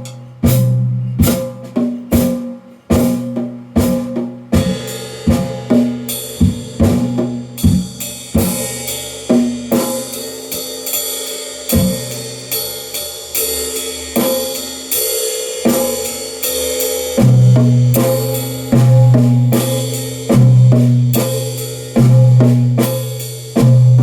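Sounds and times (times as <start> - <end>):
heavy low drum tone: 0.0 - 10.5, 11.7 - 12.5, 15.7 - 24.0
cymbals ringing: 0.0 - 24.0
drum kit playing: 0.0 - 24.0.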